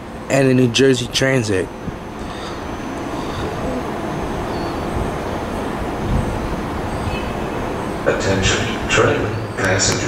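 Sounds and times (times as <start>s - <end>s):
faint high squeals: 2.2s - 5.5s.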